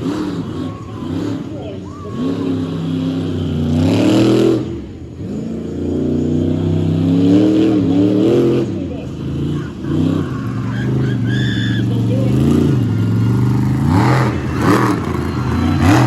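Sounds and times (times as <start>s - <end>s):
truck engine revving hard: 0.0s - 16.0s.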